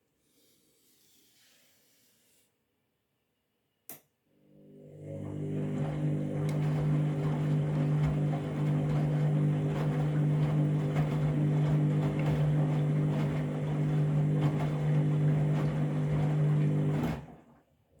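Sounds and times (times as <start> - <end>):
washing machine motor hum: 4.4 - 17.6.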